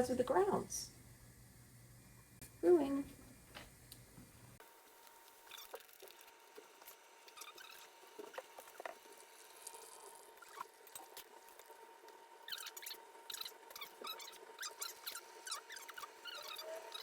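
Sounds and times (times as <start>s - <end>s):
coffee maker humming: 0.0s - 17.0s
coffee maker gurgles and drips: 4.6s - 17.0s.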